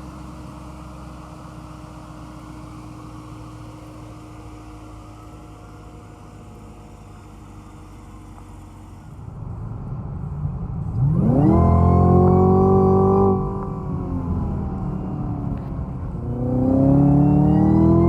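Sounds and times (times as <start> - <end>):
supercharger whine: 0.0 - 18.0
car engine revving: 9.3 - 18.0.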